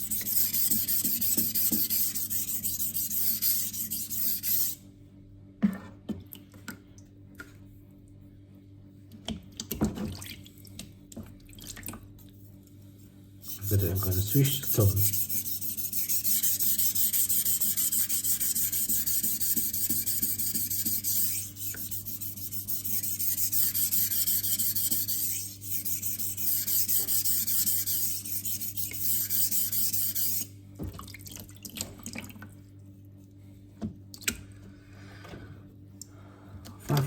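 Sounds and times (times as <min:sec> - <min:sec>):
knife scraping on whetstone: 0:13.4 - 0:30.5.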